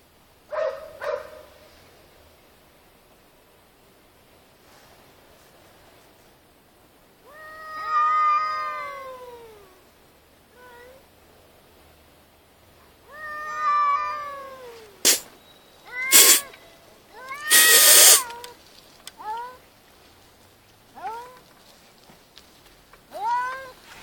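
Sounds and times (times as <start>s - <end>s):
cats yowling in a fight: 7.2s - 9.8s, 13.1s - 15.2s, 15.9s - 16.6s, 17.2s - 18.6s, 21.0s - 21.5s
cat screeching harshly: 15.1s - 15.3s, 15.9s - 16.6s, 17.2s - 18.5s.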